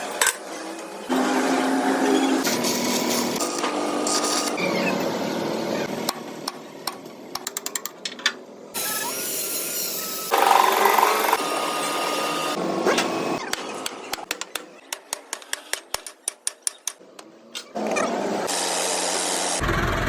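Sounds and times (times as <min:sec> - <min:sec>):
power tool running: 0:08.8 - 0:12.6, 0:18.5 - 0:20.0.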